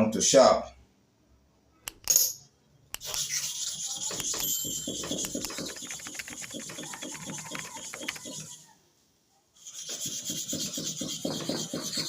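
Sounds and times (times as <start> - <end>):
blade rubbed on sharpening stone: 3.0 - 8.7, 9.6 - 12.0.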